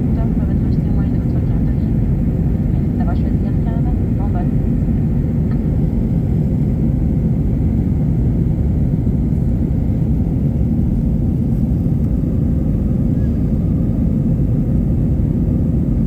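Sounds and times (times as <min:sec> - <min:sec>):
airplane cabin engine rumble: 0:00.0 - 0:16.0.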